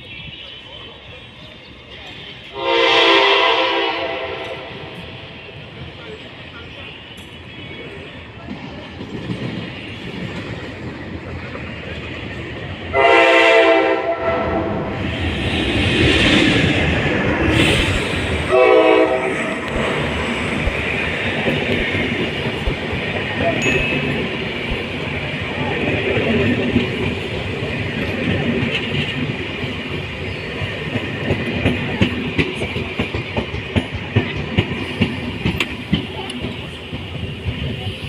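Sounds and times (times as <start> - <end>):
train rumbling past: 0.0 - 38.0
train horn blast: 2.5 - 5.0, 12.9 - 14.9, 18.4 - 19.7.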